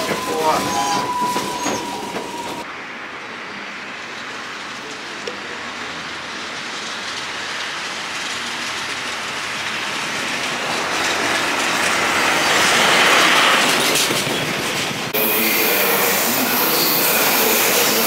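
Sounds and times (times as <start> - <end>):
train running on rails: 0.0 - 18.0.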